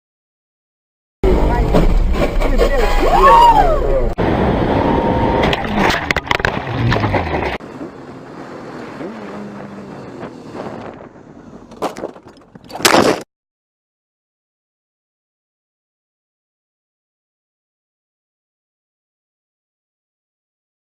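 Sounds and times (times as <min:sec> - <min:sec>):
road traffic noise: 0:03.6 - 0:12.8.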